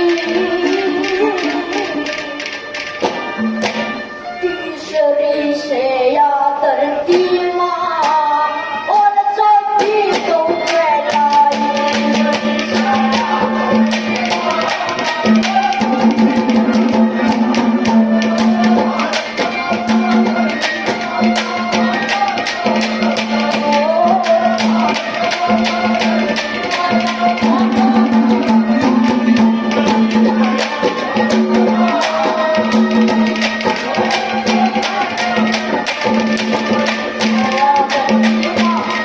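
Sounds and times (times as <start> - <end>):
fast hand-drum beat: 9.8 - 39.0.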